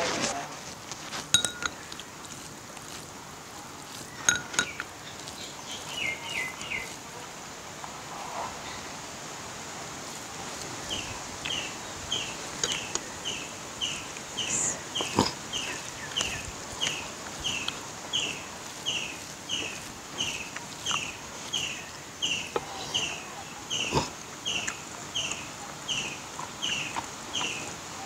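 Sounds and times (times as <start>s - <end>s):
bird chirping: 10.9s - 27.7s.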